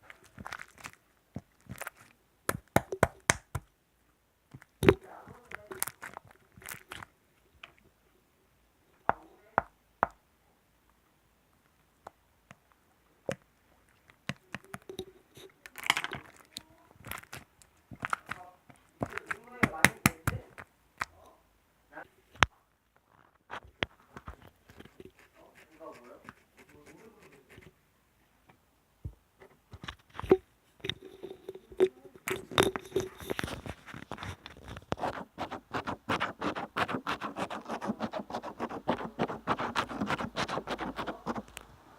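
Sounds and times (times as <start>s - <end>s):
rustling: 0.0s - 3.7s, 4.5s - 7.9s, 13.8s - 21.3s, 29.5s - 41.9s
sharp clicks taps and crackles: 0.6s - 3.7s, 9.1s - 10.2s, 15.8s - 21.2s
sharp taps and clicks: 2.5s - 3.7s, 9.1s - 10.2s, 19.0s - 21.1s.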